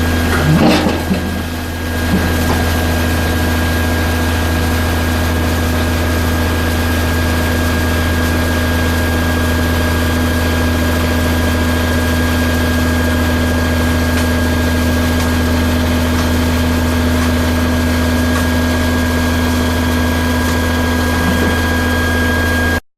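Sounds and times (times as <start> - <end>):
truck engine droning: 0.0 - 22.8.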